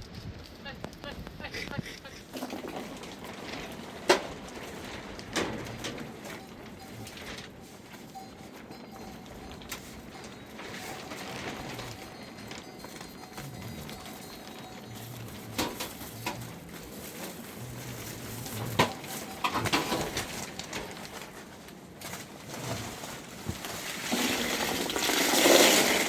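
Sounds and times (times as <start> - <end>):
rustling: 0.0 - 26.0
low cooing calls: 10.2 - 20.5.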